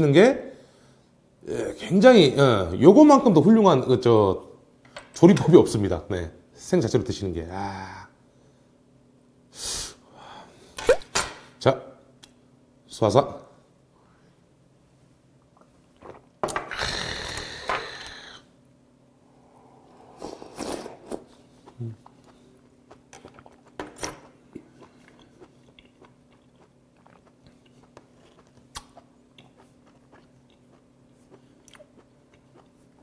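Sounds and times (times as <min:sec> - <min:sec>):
close-up chewing: 0:21.0 - 0:33.0
wet mouth clicks and smacks: 0:25.2 - 0:30.8.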